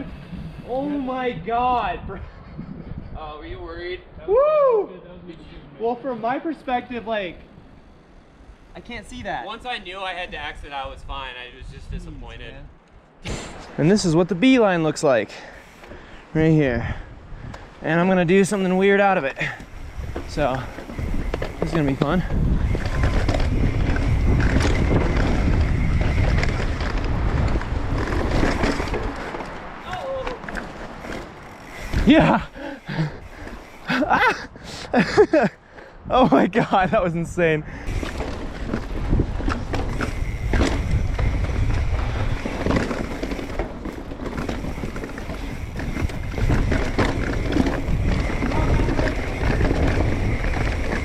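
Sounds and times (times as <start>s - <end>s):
wind buffeting microphone: 0.0s - 5.8s, 6.6s - 51.0s
bike rattling clicks: 15.4s - 16.2s, 18.4s - 34.3s, 37.8s - 51.0s
tyres rolling on dirt: 17.8s - 34.4s, 37.9s - 51.0s.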